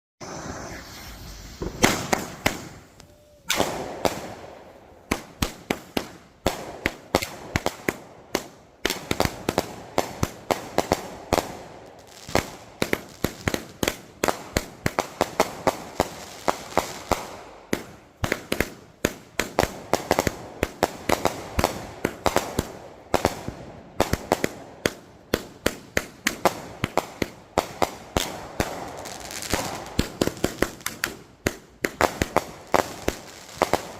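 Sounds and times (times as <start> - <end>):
fireworks bangs and pops: 0.2 - 33.9.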